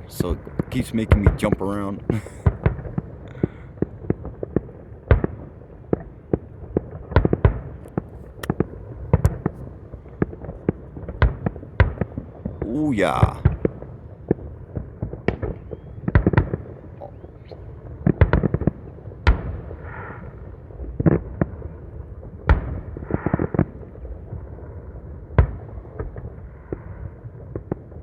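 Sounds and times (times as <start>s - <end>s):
fireworks bangs and booms: 0.0s - 16.8s.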